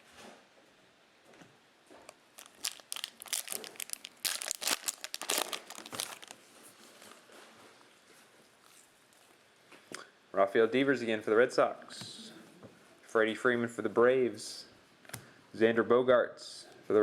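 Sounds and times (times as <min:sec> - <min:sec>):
foil wrapper crinkling: 0:02.1 - 0:07.0.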